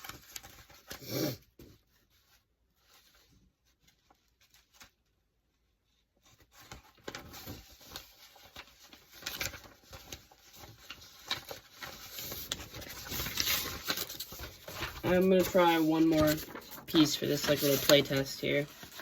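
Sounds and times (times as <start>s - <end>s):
rustling: 6.2s - 19.0s.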